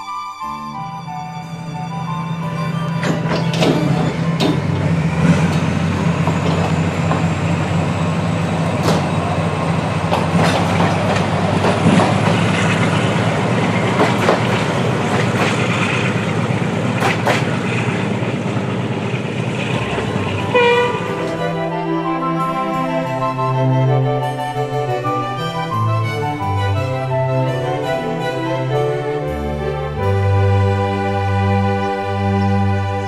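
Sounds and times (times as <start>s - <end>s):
diesel locomotive engine droning: 0.0s - 33.0s
train wheels clicking over rail joints: 1.8s - 21.9s.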